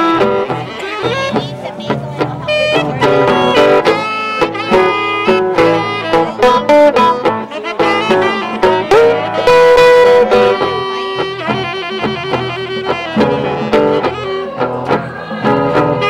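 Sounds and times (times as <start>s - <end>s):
guitar and bass: 0.0s - 16.0s
sliding blues lead guitar: 0.0s - 16.0s.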